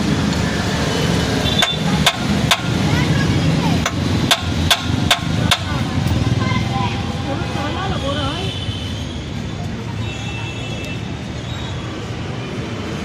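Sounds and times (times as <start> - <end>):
hammer striking metal: 1.6 - 2.8, 3.8 - 5.8.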